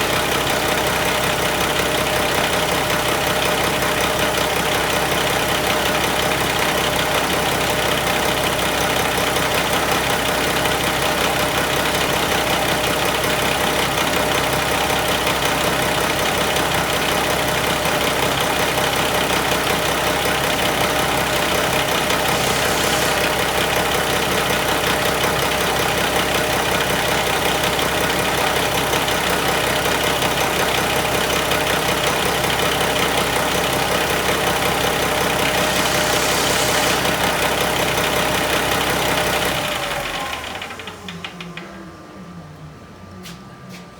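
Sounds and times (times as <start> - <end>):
diesel engine idling: 12.6 - 41.2.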